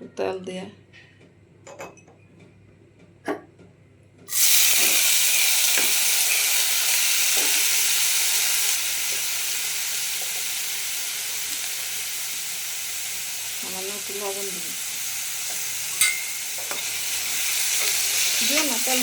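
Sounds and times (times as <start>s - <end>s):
potatoes sizzling in oil: 4.3s - 19.0s.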